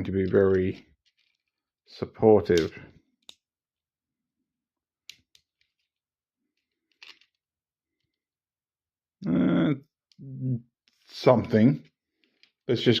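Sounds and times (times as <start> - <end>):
plastic bricks clicking: 5.0 - 6.0, 6.6 - 7.4, 12.2 - 12.6.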